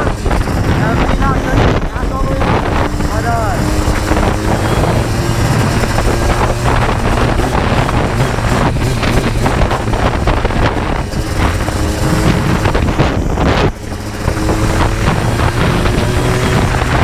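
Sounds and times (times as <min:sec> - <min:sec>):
two-stroke engine running: 0:00.0 - 0:17.0
wind across microphone: 0:00.0 - 0:17.0.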